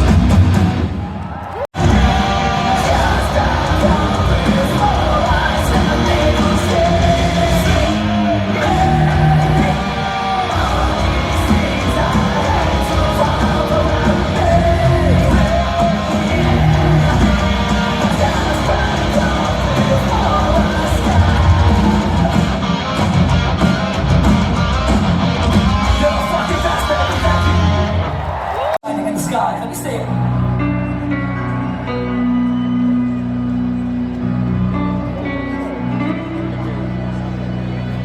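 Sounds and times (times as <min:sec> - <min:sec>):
heavy metal band playing: 0:00.0 - 0:01.2, 0:01.8 - 0:38.0
person singing and yelling: 0:01.8 - 0:22.7.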